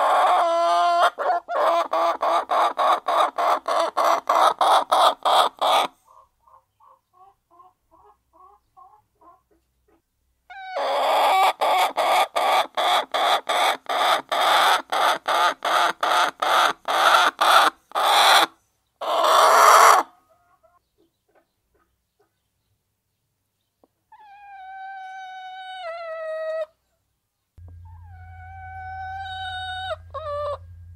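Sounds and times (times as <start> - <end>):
hens clucking softly: 0.0 - 22.5.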